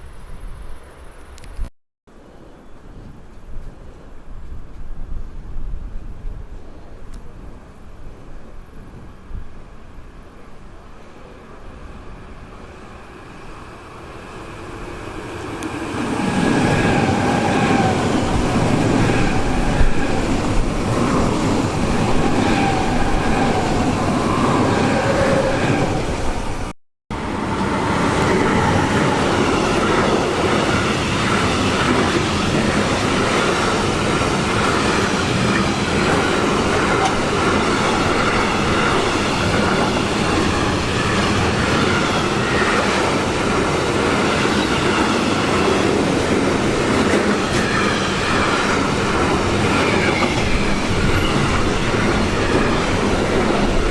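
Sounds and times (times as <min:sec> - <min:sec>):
train wheels rumbling over rails: 0:13.1 - 0:53.9.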